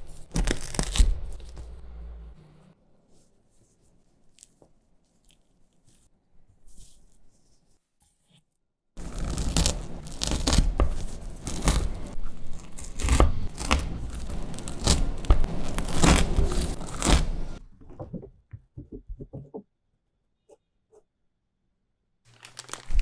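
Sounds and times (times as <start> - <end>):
snack packaging crinkling: 0.1 - 1.8, 9.0 - 17.6, 22.3 - 23.0.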